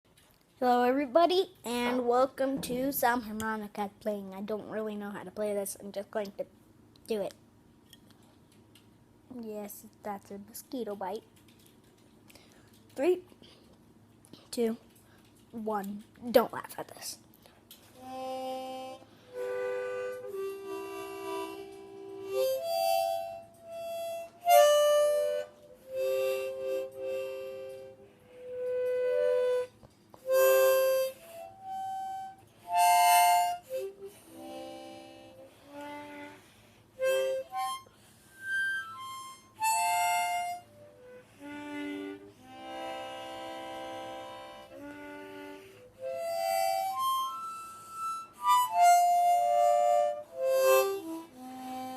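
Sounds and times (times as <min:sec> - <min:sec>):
harmonica notes and chords: 0:17.9 - 0:51.9.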